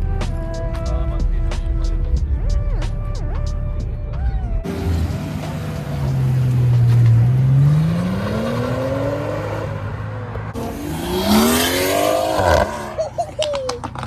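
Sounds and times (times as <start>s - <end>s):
car engine accelerating: 4.6s - 13.2s
second car engine accelerating: 4.6s - 13.2s.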